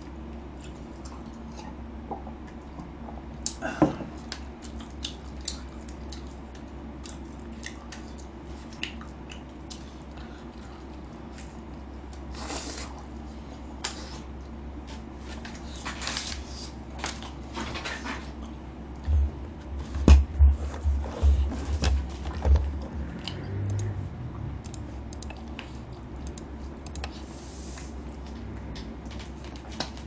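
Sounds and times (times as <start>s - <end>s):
steady low hum: 0.0s - 30.0s
person chewing chicken: 4.2s - 14.4s
low thumps: 19.0s - 24.3s.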